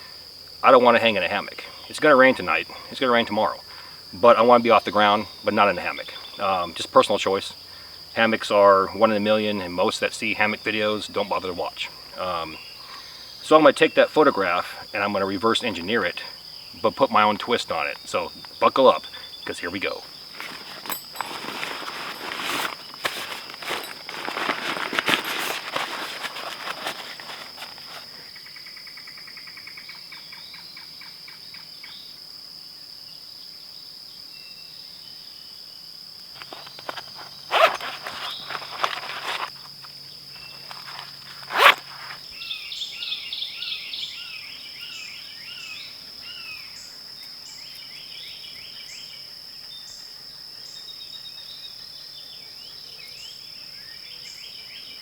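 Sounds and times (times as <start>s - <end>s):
high insect drone: 0.0s - 55.0s
sharp crunching snaps: 17.9s - 28.2s, 36.4s - 42.3s
footsteps rustling through brush: 20.1s - 28.2s, 36.4s - 39.8s.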